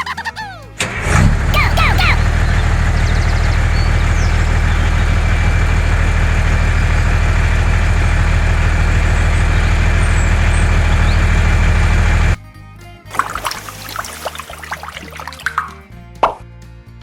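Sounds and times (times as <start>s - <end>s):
engine idling: 0.1s - 12.4s.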